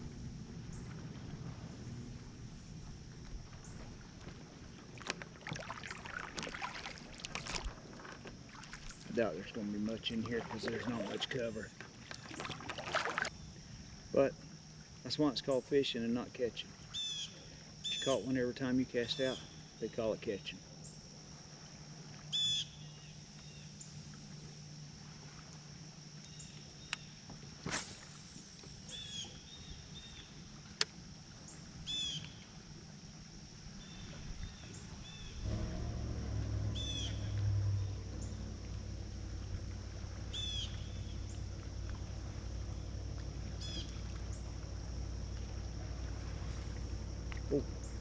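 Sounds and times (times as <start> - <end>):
insect buzz: 0.0 - 48.0
motorboat engine drone: 0.0 - 48.0
bird chirps: 36.7 - 38.4, 40.3 - 41.3.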